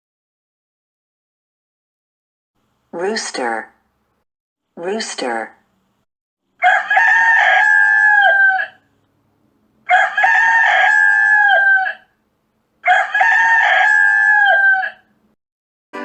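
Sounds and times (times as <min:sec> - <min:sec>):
rooster crowing: 0:06.6 - 0:08.9, 0:09.9 - 0:12.2, 0:12.8 - 0:15.1.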